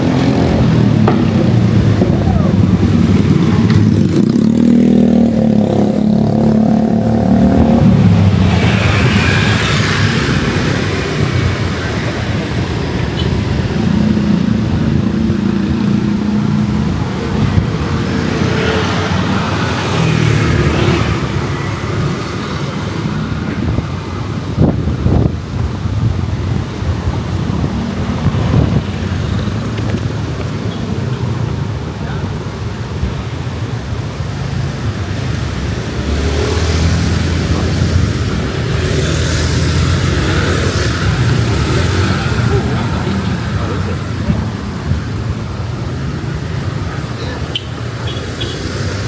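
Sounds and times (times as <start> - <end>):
cars passing: 0.0 - 49.0
motorbikes passing: 0.0 - 49.0
wind buffeting microphone: 21.0 - 35.8.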